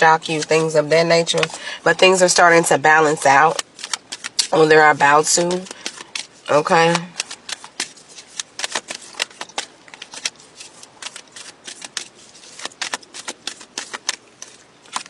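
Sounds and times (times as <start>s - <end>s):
cards being shuffled: 0.2s - 1.6s, 3.1s - 15.0s.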